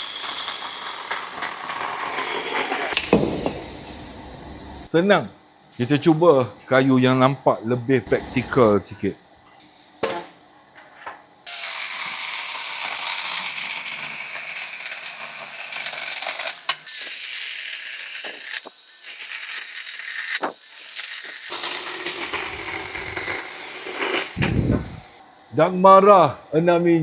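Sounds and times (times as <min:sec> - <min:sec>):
mini chainsaw cutting branch: 0:00.0 - 0:04.2, 0:11.5 - 0:25.2.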